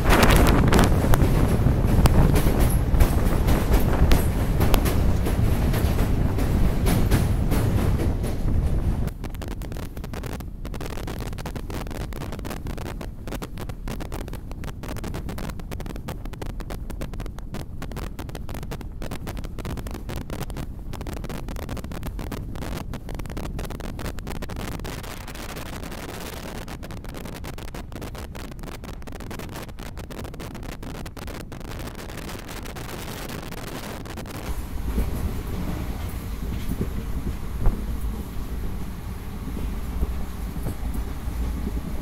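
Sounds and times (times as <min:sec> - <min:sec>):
train coaches rumbling on track: 0:00.0 - 0:09.2, 0:34.4 - 0:42.0
wind buffeting microphone: 0:00.0 - 0:42.0.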